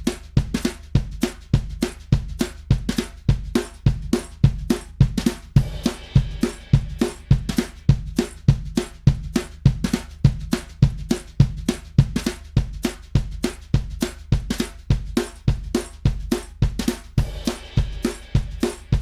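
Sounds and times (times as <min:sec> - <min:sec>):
drum kit groove: 0:00.0 - 0:19.0
cymbal crash: 0:05.6 - 0:07.3.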